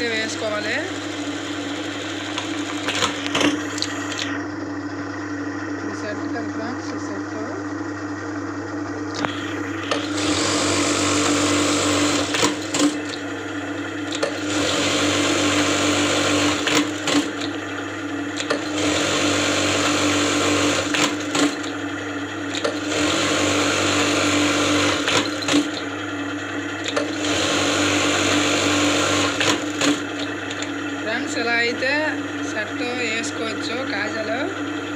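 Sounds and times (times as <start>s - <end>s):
sewing machine fast stitching: 0.0s - 3.7s, 9.8s - 13.3s, 14.1s - 17.8s, 18.4s - 21.9s, 22.5s - 26.0s, 26.8s - 30.5s
motor hum: 0.0s - 34.9s
machine sharp clicks: 14.1s - 14.5s, 18.3s - 18.8s.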